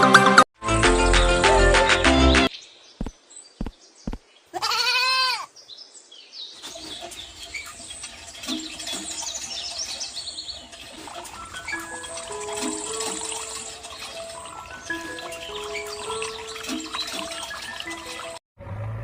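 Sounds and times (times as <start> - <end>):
goat bleating: 4.5 - 5.5.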